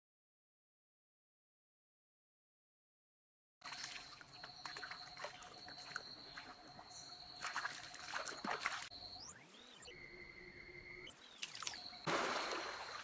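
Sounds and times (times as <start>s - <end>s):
water trickling over rocks: 3.6s - 8.9s.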